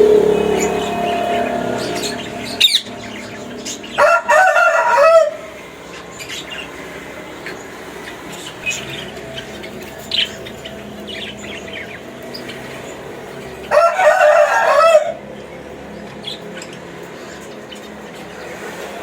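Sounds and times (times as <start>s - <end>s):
rooster crowing: 0.0s - 5.6s, 13.6s - 15.3s.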